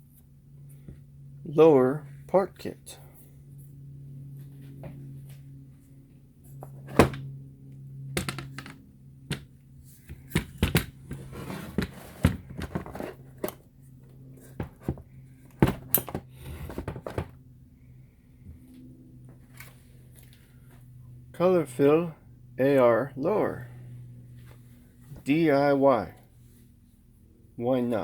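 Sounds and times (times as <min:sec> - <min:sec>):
low steady hum: 0:00.0 - 0:28.0
sliding and rubbing: 0:11.1 - 0:13.3.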